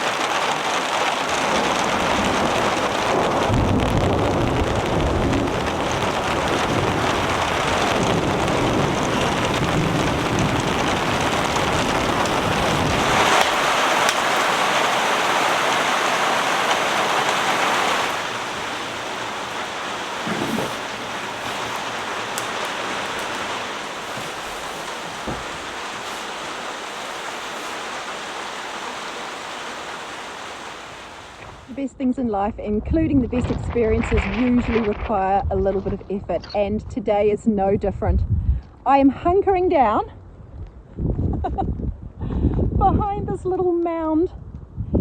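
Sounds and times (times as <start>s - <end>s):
low thunder rumble: 0.0s - 29.9s, 32.4s - 38.6s
heavy rain: 0.0s - 31.8s.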